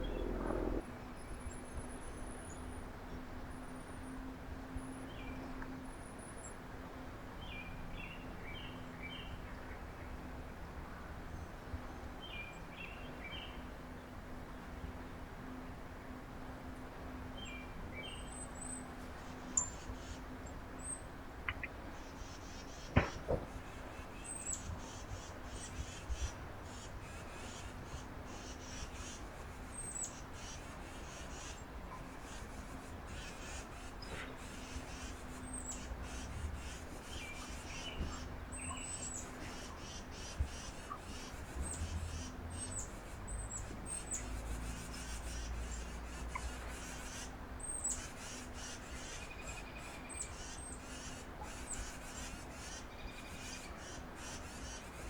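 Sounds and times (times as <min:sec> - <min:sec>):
high bird calls: 0:00.0 - 0:00.8
lower bird calls: 0:00.0 - 0:00.8
faint outdoor rumble: 0:00.0 - 0:55.0.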